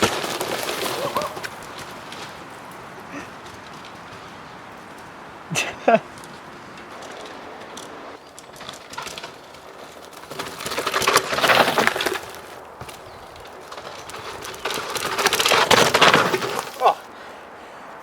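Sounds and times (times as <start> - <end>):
bike tyres crunching over dirt: 0.0 - 18.0.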